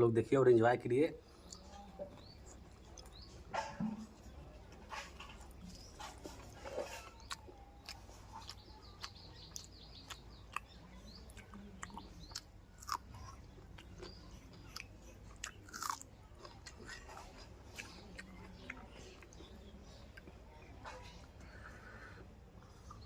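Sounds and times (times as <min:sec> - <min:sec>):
person chewing crunchy food: 0:01.4 - 0:03.5, 0:04.1 - 0:23.0.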